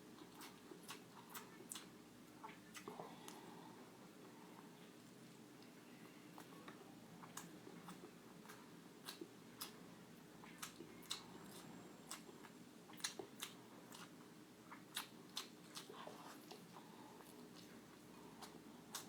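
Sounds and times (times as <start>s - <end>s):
person chewing crunchy food: 0.1s - 3.5s, 7.2s - 19.0s.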